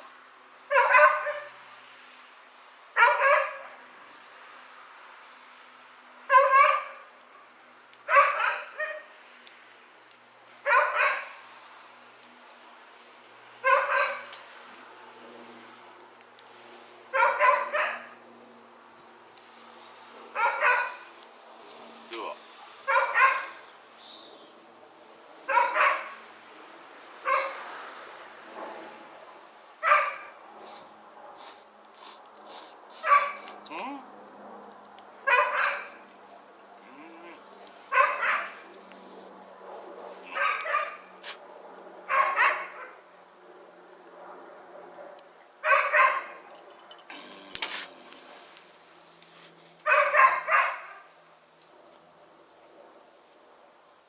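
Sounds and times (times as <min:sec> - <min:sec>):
dog barking: 0:00.7 - 0:01.6, 0:03.0 - 0:03.8, 0:06.3 - 0:07.1, 0:08.1 - 0:09.1, 0:10.6 - 0:11.4, 0:13.6 - 0:14.3, 0:17.1 - 0:18.2, 0:20.3 - 0:21.1, 0:22.6 - 0:23.6, 0:25.5 - 0:26.2, 0:27.2 - 0:27.6, 0:29.8 - 0:30.4, 0:33.0 - 0:33.6, 0:35.2 - 0:36.1, 0:36.8 - 0:38.8, 0:40.2 - 0:41.4, 0:42.1 - 0:43.0, 0:45.6 - 0:46.4, 0:49.8 - 0:51.1.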